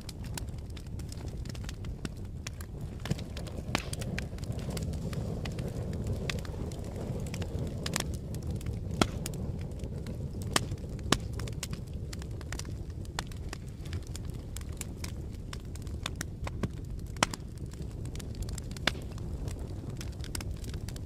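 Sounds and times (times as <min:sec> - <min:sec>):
fire crackling and popping: 0:00.0 - 0:21.0.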